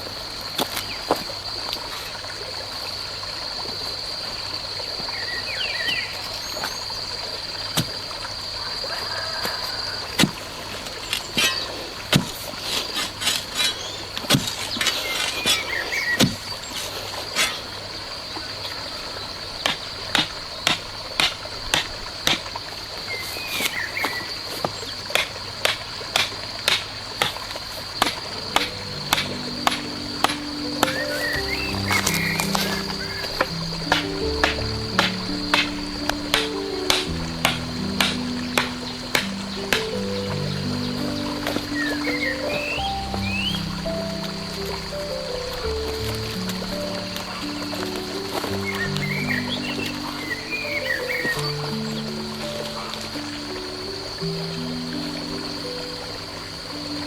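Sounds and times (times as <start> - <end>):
high insect drone: 0.0 - 14.0, 14.6 - 57.0
sharp knocks: 28.0 - 40.1.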